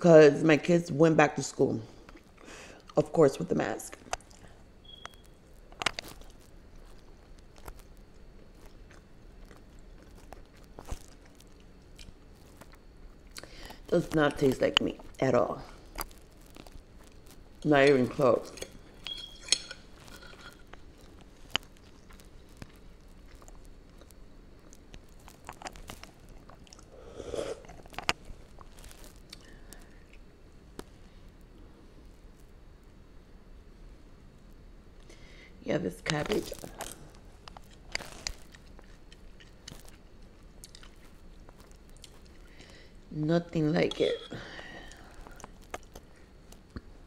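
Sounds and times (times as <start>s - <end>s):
chewing with mouth clicks: 3.9s - 13.9s, 18.5s - 30.9s, 36.5s - 43.0s, 43.9s - 47.0s.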